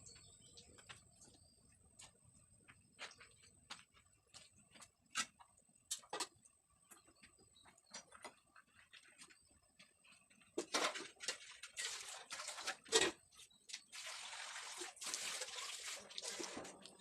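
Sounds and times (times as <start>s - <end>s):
water splashing and pouring: 10.8s - 17.0s.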